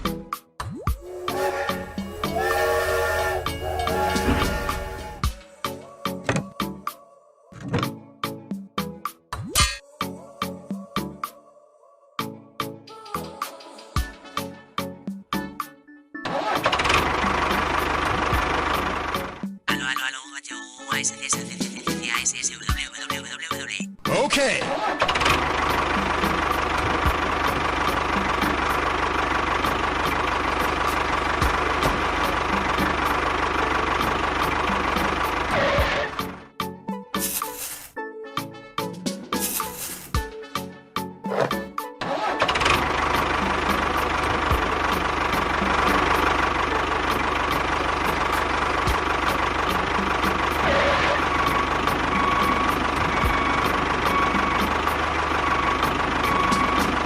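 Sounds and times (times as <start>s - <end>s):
steady whine: 1.0s - 5.4s
small engine idling with knock: 25.1s - 36.0s, 42.5s - 57.0s.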